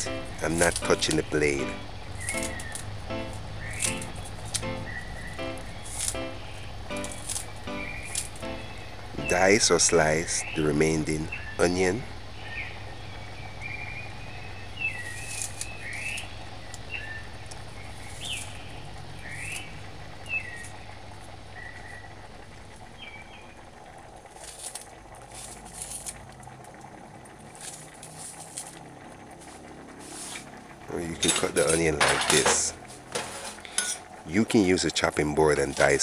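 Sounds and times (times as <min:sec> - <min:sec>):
bird chirping: 0:00.0 - 0:23.8
low hum: 0:00.0 - 0:34.8.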